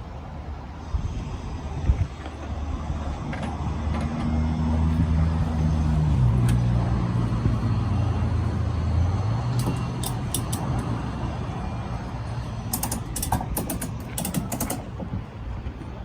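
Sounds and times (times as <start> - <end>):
vehicle humming: 0.0 - 16.0
sharp mechanical clicks: 9.5 - 11.0, 12.7 - 15.0.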